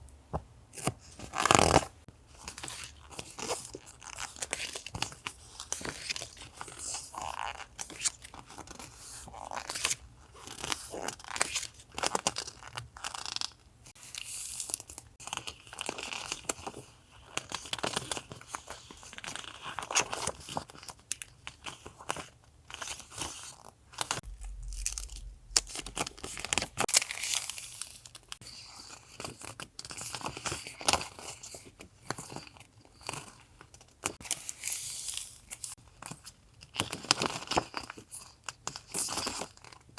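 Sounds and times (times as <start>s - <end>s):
dull low thump: 24.2s - 26.9s.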